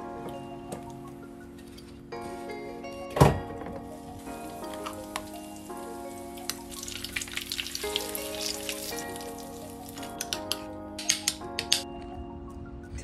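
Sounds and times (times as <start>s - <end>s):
background music of sustained chords: 0.0s - 13.0s
food sizzling in hot oil: 4.2s - 10.3s.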